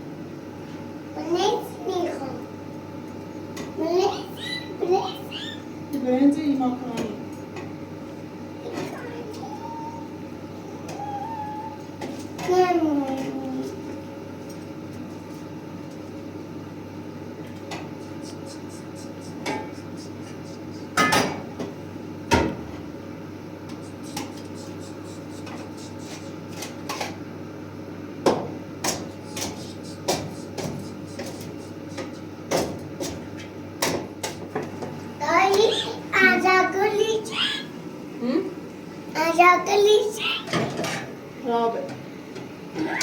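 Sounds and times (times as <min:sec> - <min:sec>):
knocks and clinks of household objects: 0:21.0 - 0:21.7.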